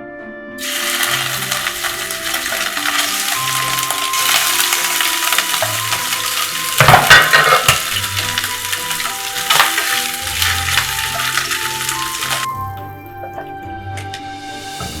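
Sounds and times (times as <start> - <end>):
soft background music: 0.0 - 15.0
stirring in a pan: 0.6 - 12.5
food sizzling in a pan: 0.6 - 12.6, 14.4 - 15.0.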